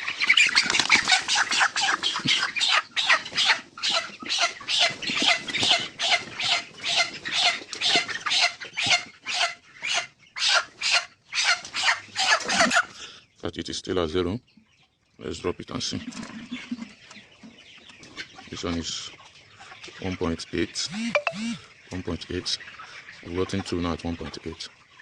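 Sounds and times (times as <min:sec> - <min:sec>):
chicken squawking: 0:00.0 - 0:13.0, 0:20.6 - 0:21.8.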